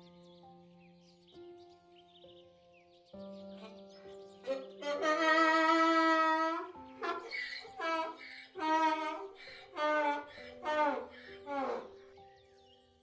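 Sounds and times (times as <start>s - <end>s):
calm background music: 0.0s - 13.0s
animal calling: 3.5s - 12.2s.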